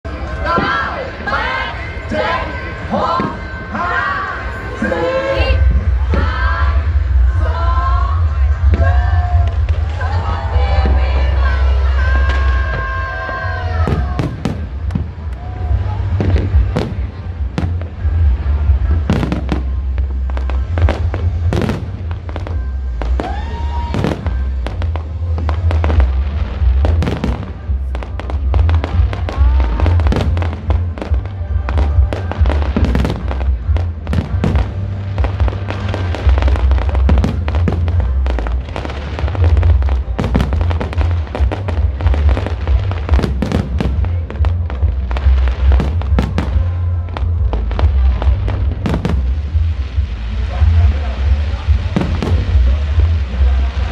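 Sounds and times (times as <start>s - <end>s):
fireworks bangs and crackles: 0.1s - 53.9s
loud music with heavy bass: 2.1s - 53.9s
fireworks whistles: 18.9s - 31.2s.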